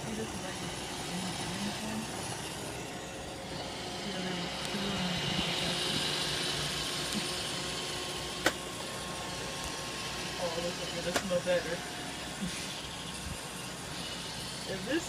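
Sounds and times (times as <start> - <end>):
robot vacuum whirring: 0.0 - 15.0.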